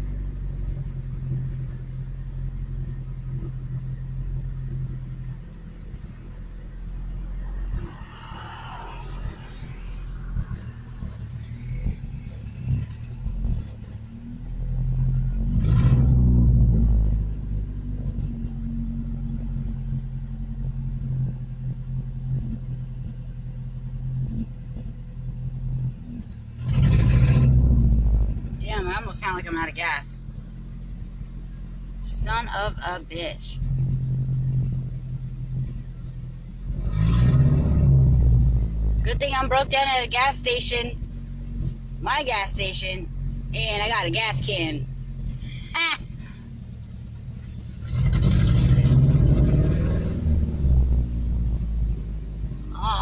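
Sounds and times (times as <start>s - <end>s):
truck engine rumbling unevenly: 0.0s - 53.0s
engine revving loud: 14.6s - 17.3s, 26.6s - 29.5s, 36.6s - 40.3s, 47.8s - 52.0s
pickup truck engine idling: 27.5s - 36.7s, 38.6s - 48.0s.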